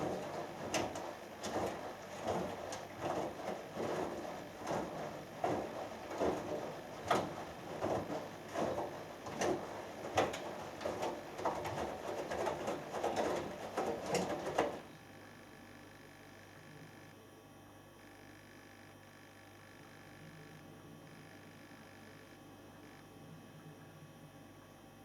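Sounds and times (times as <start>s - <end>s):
washing machine sloshing laundry: 0.0s - 14.9s.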